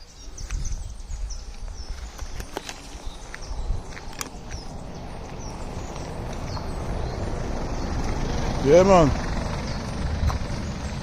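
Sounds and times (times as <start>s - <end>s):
wind on microphone: 0.0s - 8.3s.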